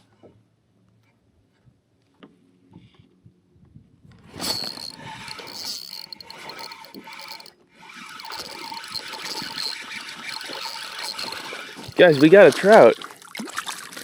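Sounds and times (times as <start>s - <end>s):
fishing reel ratchet clatter: 4.4s - 12.9s.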